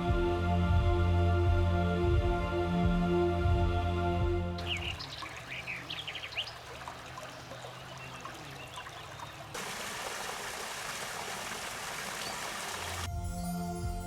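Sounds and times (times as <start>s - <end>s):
water trickling in stream: 4.6s - 13.1s.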